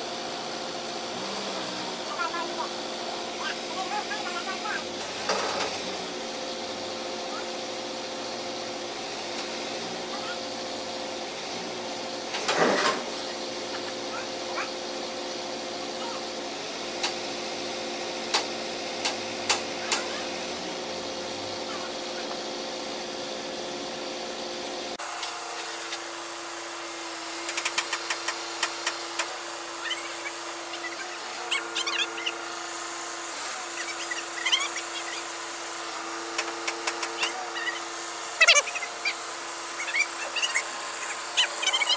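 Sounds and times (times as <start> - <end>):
loader engine running: 27.6 - 41.9.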